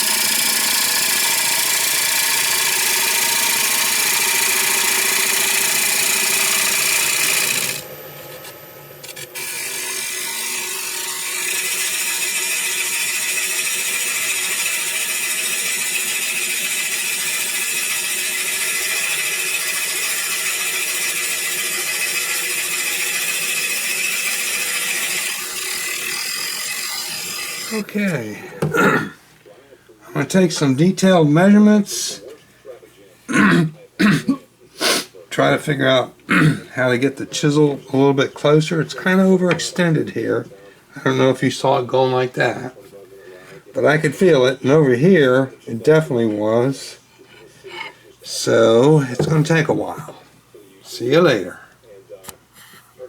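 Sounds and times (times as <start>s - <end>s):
turning tool scraping wood: 0.0s - 28.6s, 36.8s - 40.2s, 45.8s - 50.2s
wood lathe hum: 0.0s - 28.6s.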